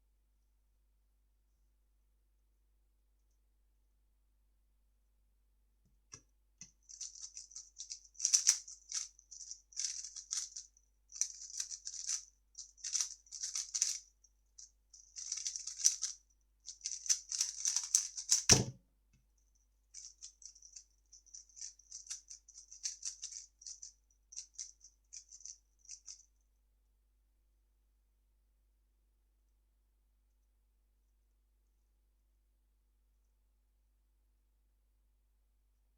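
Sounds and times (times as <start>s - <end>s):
puzzle cube clicking and rattling: 6.8s - 18.7s, 19.9s - 26.2s
cube thump: 18.5s - 18.8s.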